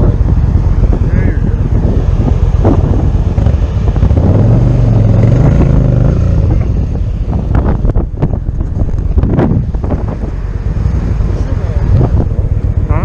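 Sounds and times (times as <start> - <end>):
motorcycle engine accelerating: 0.0 - 13.0
wind noise on microphone: 0.0 - 13.0.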